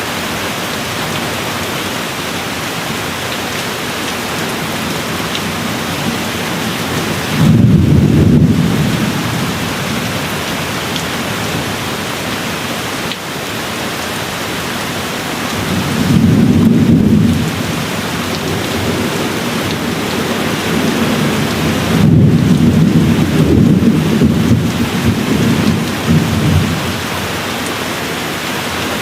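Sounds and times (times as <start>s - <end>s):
steady rain: 0.0s - 29.0s
low rolling thunder: 4.6s - 12.0s, 15.5s - 27.4s.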